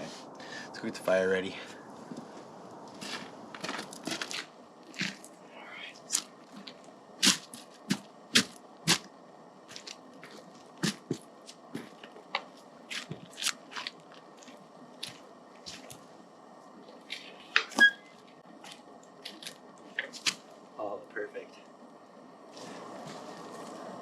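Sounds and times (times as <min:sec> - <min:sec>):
campfire crackling and popping: 0:01.9 - 0:20.8.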